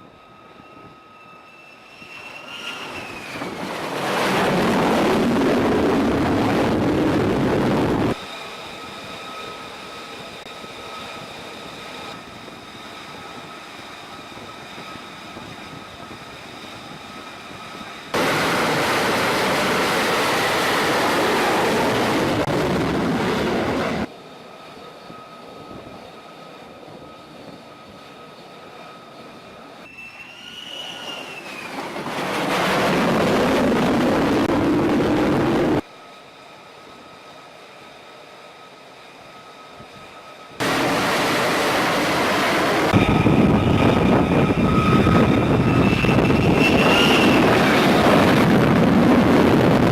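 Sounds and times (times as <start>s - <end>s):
jet engine whine: 0.0s - 49.9s
full-power jet blast: 18.1s - 24.1s, 40.6s - 49.9s.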